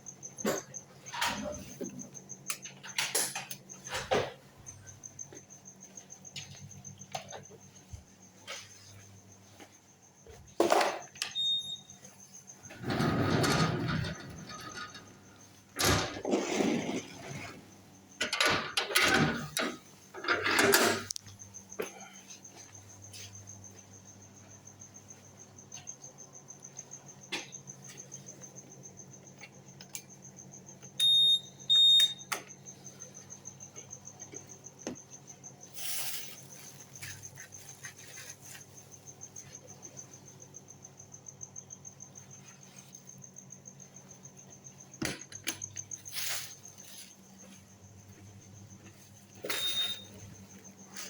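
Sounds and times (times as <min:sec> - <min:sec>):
cricket chirping: 0:00.0 - 0:51.0
electronic beeps: 0:49.5 - 0:50.1.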